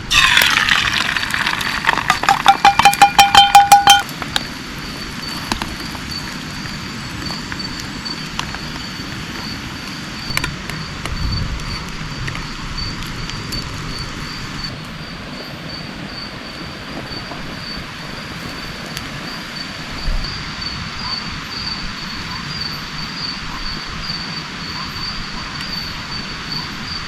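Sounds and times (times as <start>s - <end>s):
rain drops ticking: 0.0s - 20.8s
insect trilling: 0.0s - 27.0s
rain hiss: 0.0s - 27.0s
rapid ringing notes: 0.1s - 4.1s.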